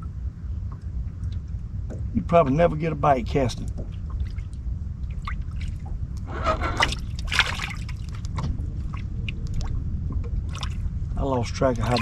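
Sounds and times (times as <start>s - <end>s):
low rumble: 0.0s - 12.0s
water lapping against boat hull: 0.0s - 12.0s
water splash: 6.8s - 9.8s, 10.4s - 10.9s, 11.8s - 12.0s.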